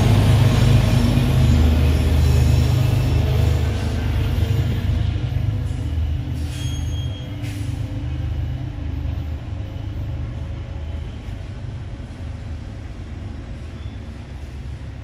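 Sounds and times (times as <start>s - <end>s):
diesel train rumbling: 0.0s - 15.0s.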